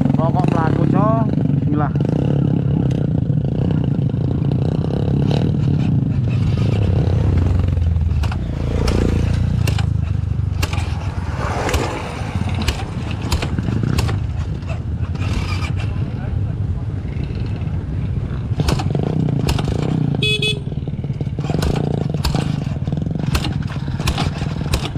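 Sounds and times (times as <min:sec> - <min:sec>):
motorcycle engine rumbling: 0:00.0 - 0:24.9
sharp knocks and clatters: 0:05.3 - 0:15.8, 0:18.5 - 0:20.2, 0:21.0 - 0:24.9.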